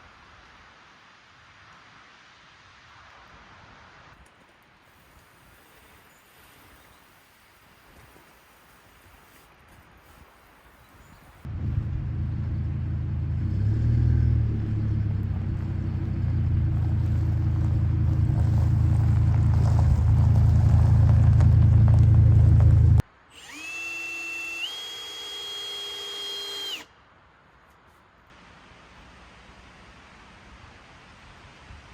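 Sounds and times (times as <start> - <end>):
low machine rumble: 11.5 - 23.0
power tool motor whine: 22.6 - 26.9.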